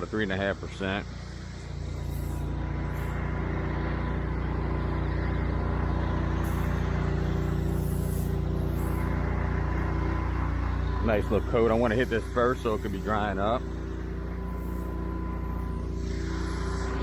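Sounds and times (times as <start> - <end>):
small gas engine running: 0.0 - 17.0
hiss of liquid spraying: 6.4 - 11.4.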